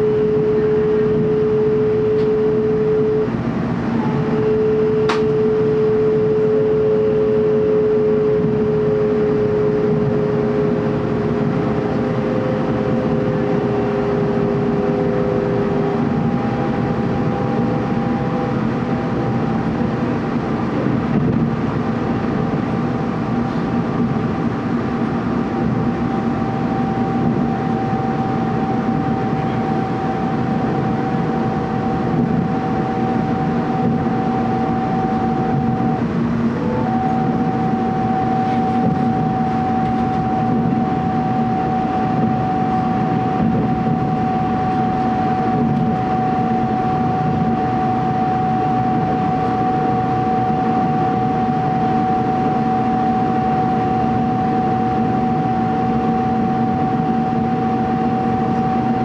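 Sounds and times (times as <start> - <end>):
whining tones: 0.0 - 59.0
train wheels rumbling: 9.8 - 48.0.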